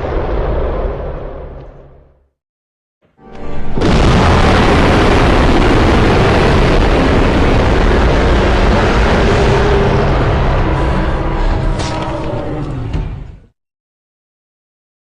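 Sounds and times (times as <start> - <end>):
loud rumbling roar: 3.8 - 13.4.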